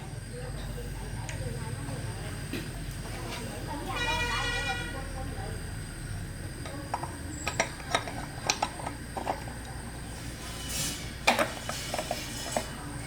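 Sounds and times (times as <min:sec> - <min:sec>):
metal tools clinking and knocking: 0:06.6 - 0:09.5.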